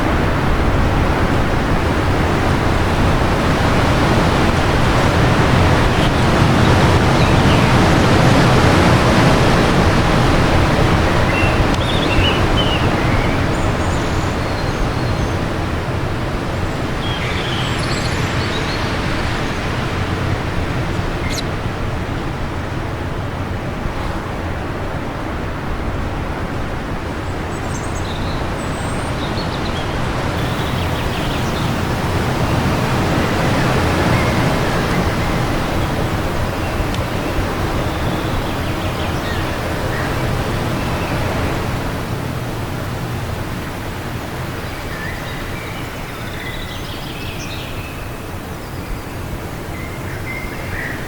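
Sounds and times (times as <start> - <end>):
wind gust rushing: 30.0 - 45.8
faint bird chirps: 30.4 - 42.6.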